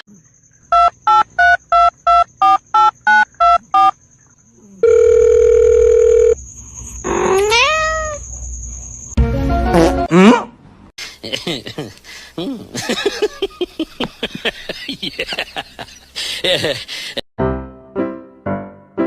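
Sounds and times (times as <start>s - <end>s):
steady phone tone: 4.8s - 6.4s
cat meowing: 7.3s - 8.2s.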